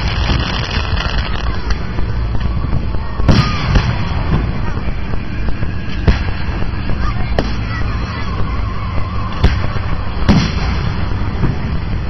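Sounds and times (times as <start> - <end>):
fireworks bangs: 0.0 - 12.0
low rumble: 0.0 - 12.0.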